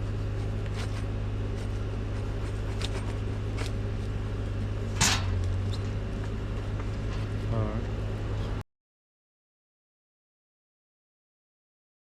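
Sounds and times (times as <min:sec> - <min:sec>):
low engine hum: 0:00.0 - 0:08.6
sharp metal knock: 0:05.0 - 0:05.4.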